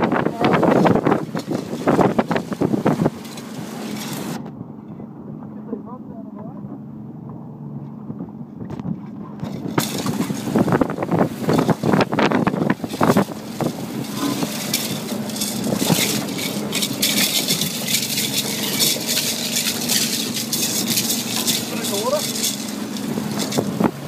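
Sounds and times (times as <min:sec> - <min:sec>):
wind on microphone: 0:00.0 - 0:04.4, 0:08.0 - 0:24.0
rushing water: 0:00.0 - 0:04.5, 0:09.4 - 0:24.0
boat engine running: 0:00.0 - 0:24.0.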